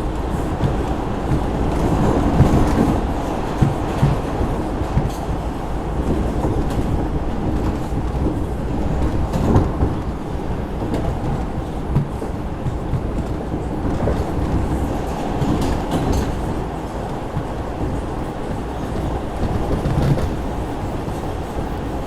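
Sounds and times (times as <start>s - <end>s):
subway wheels rumbling on rail: 0.0s - 22.0s.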